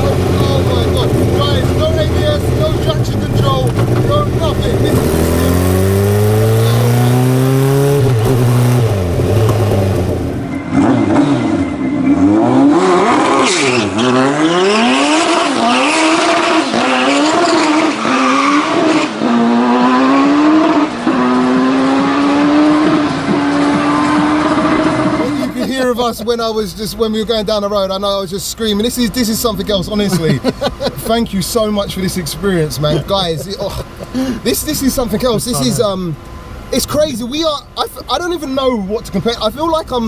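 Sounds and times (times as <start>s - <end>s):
engine accelerating hard: 0.0s - 25.9s.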